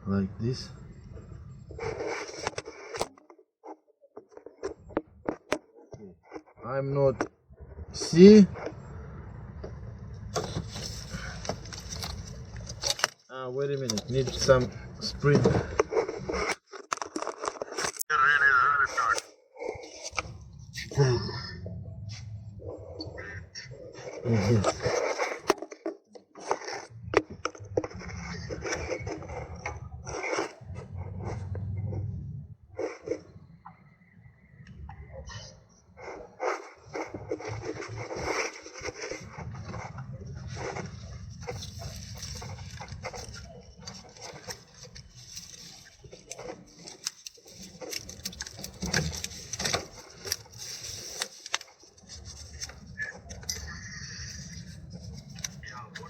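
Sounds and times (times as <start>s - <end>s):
low hum: 6.6s - 13.1s, 19.9s - 25.0s, 26.9s - 56.0s.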